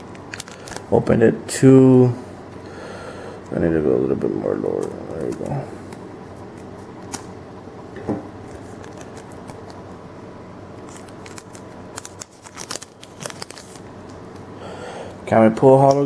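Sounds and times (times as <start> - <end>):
foil pack crinkling: 0.1 - 1.0, 8.4 - 9.8, 10.8 - 14.5.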